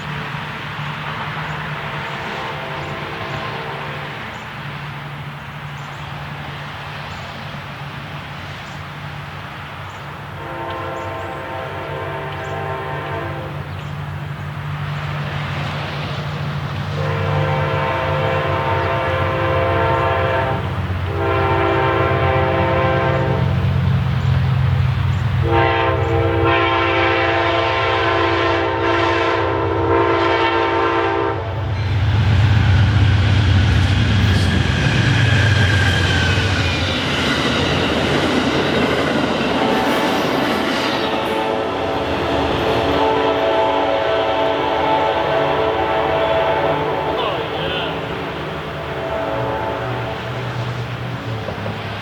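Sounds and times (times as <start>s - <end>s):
diesel locomotive engine rumble: 0.0s - 52.0s
train air horn blasts: 2.1s - 4.3s, 10.3s - 13.7s, 16.9s - 23.8s, 25.4s - 32.1s, 40.7s - 50.6s
train wheels clacking on rails: 31.6s - 45.6s, 50.2s - 52.0s.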